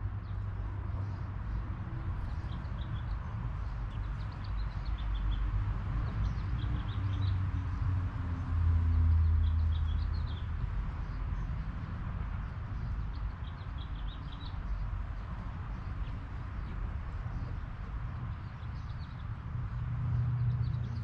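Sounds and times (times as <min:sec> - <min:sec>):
birds chirping: 0:12.4 - 0:21.0.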